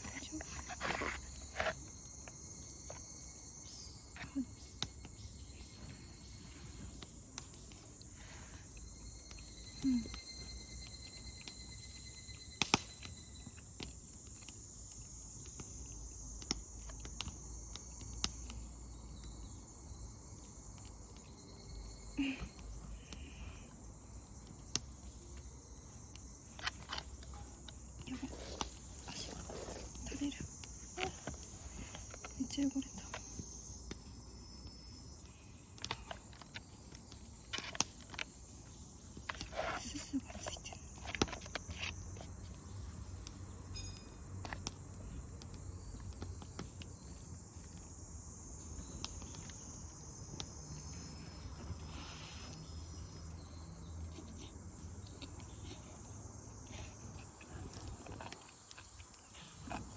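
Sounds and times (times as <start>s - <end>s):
crickets trilling: 0.0s - 59.9s
insects chirring: 0.0s - 59.9s.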